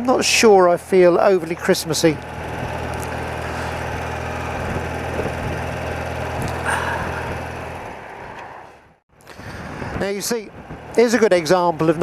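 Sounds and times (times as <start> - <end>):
motorcycle engine cruising: 0.0 - 9.0
wind and road noise: 0.0 - 12.0.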